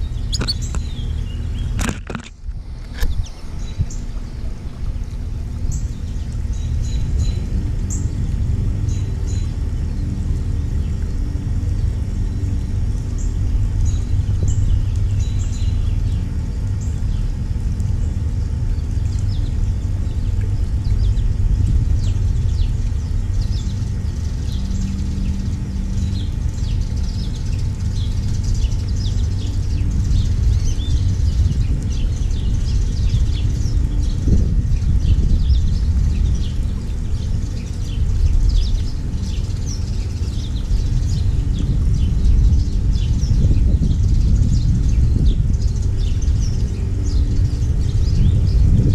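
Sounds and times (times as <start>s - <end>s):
finches chirping: 0.0s - 1.9s, 22.0s - 48.8s
steady low rumble: 0.0s - 48.9s.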